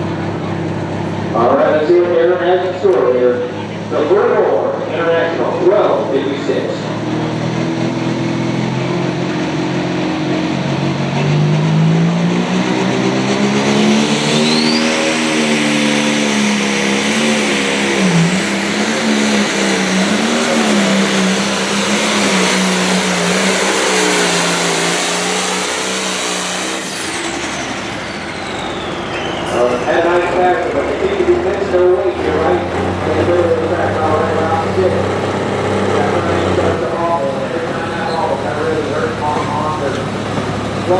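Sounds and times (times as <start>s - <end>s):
diesel tractor engine revving: 0.0s - 40.9s.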